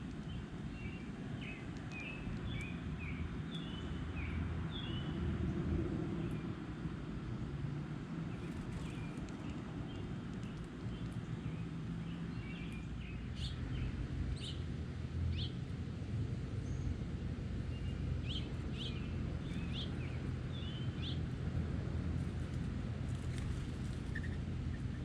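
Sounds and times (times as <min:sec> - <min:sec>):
songbirds chirping: 0:00.0 - 0:06.6, 0:08.3 - 0:25.0.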